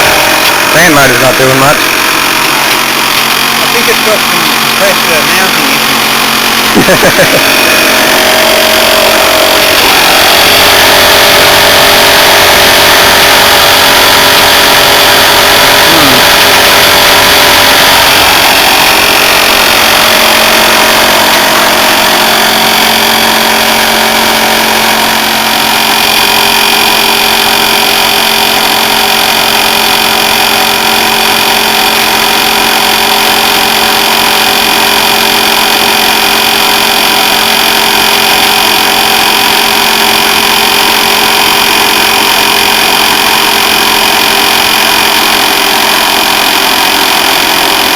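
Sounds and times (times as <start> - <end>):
air conditioner compressor humming: 0.0 - 30.0.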